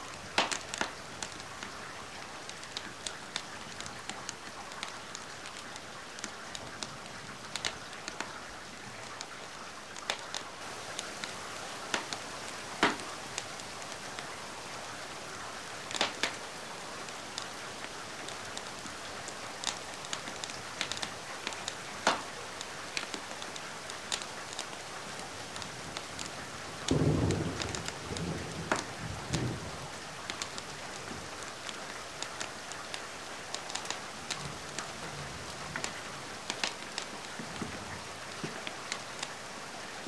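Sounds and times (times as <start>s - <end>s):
wood fire crackling: 0.0s - 39.5s
rain hiss: 0.0s - 40.0s.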